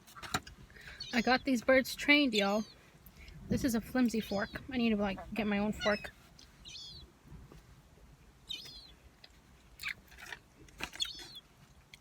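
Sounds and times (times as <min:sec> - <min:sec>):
gulls calling: 0:00.2 - 0:07.1, 0:08.4 - 0:09.0.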